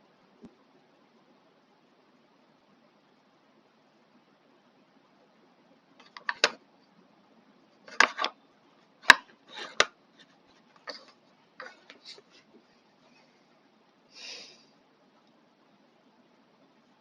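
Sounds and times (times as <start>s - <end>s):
plastic parts clicking: 6.0s - 6.6s, 7.9s - 8.4s, 9.0s - 9.9s.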